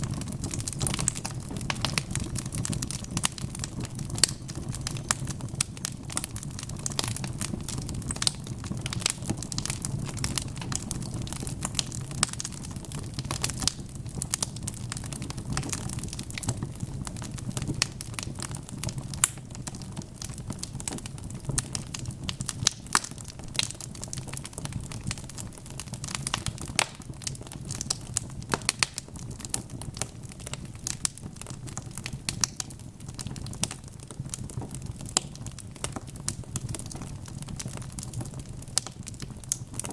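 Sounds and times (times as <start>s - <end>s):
logs crackling in fireplace: 0.0s - 39.9s
low rumble of flames: 0.0s - 39.9s.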